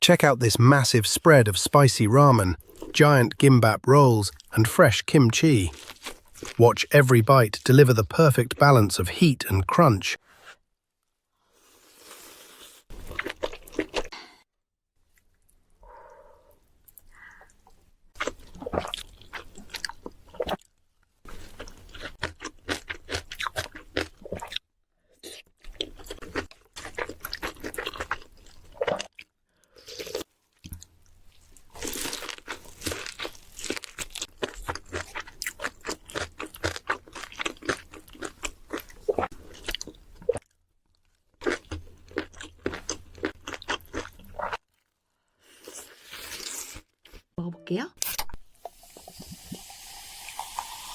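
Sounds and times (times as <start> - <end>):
crunchy chewing of food: 5.7 - 6.6, 11.6 - 14.4, 18.2 - 24.6, 25.2 - 47.3.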